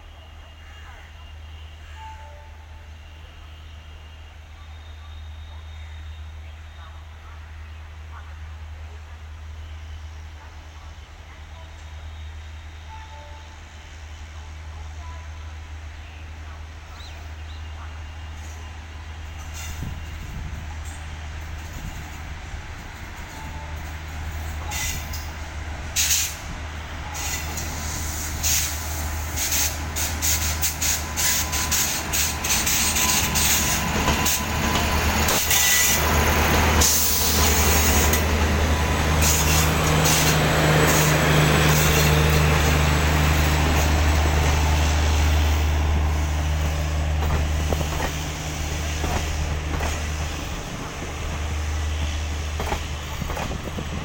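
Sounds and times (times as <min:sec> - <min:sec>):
train coaches rushing past: 0:16.8 - 0:54.0
train wheels clicking over rail joints: 0:46.6 - 0:54.0.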